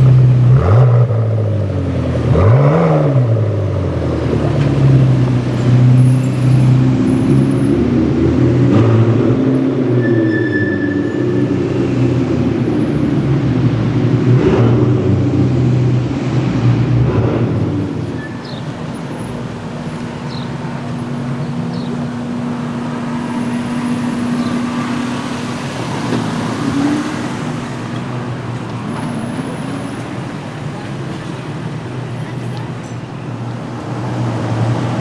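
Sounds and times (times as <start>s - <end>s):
street traffic: 0.0s - 35.0s
car engine running: 16.3s - 34.0s.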